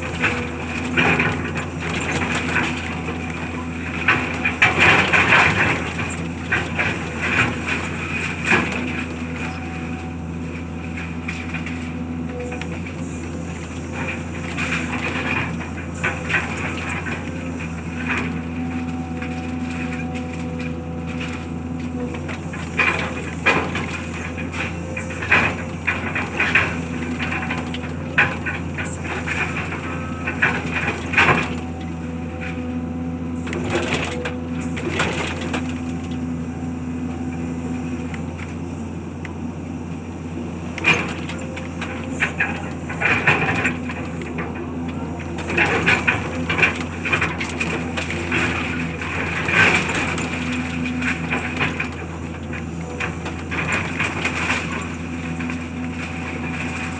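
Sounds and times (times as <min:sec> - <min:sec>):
machine engine running: 0:00.0 - 0:56.9.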